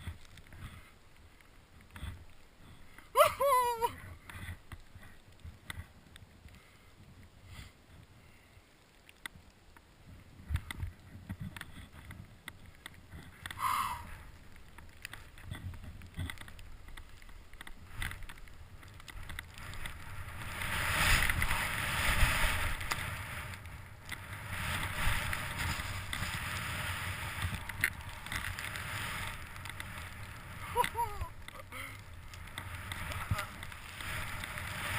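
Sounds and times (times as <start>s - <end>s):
wind on camera: 9.2s - 34.9s
rushing movement over snow: 10.1s - 34.9s.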